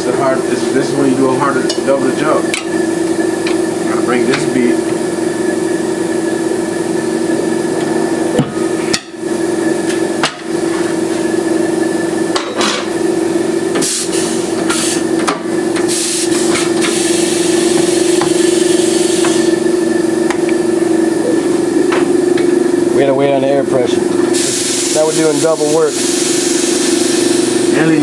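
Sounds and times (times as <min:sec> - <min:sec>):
air compressor running: 0:00.0 - 0:28.0
air hissing bursts: 0:13.8 - 0:15.1, 0:15.8 - 0:19.6, 0:24.3 - 0:27.8.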